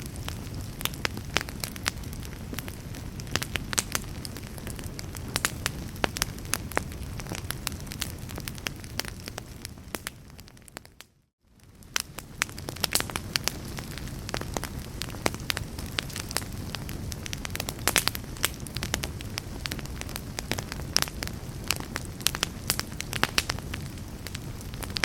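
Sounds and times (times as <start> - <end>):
low rumble and hiss of fire: 0.0 - 25.0
wood fire crackling: 0.0 - 25.0.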